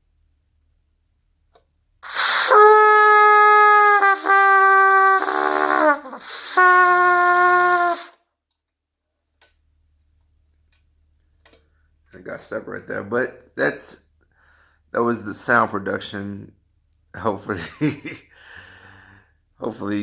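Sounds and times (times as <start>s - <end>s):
cornet playing long tones: 2.0s - 8.2s.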